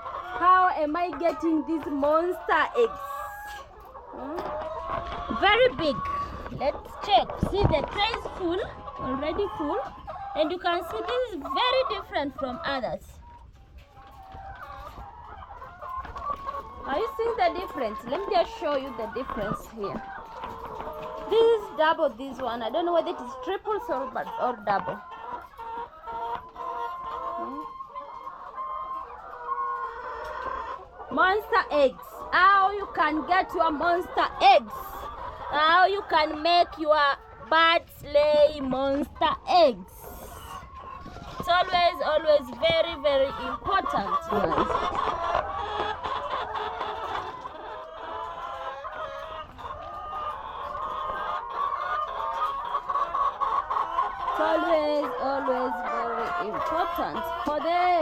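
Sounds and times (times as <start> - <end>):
hens clucking and calling: 0.0 - 58.0.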